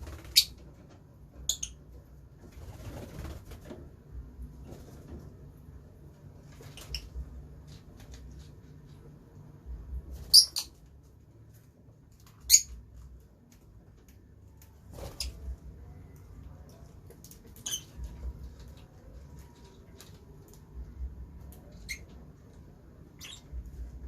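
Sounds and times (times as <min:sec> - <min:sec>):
lovebirds chirping: 0:01.4 - 0:01.9, 0:10.2 - 0:10.8, 0:17.2 - 0:19.8, 0:23.1 - 0:24.0.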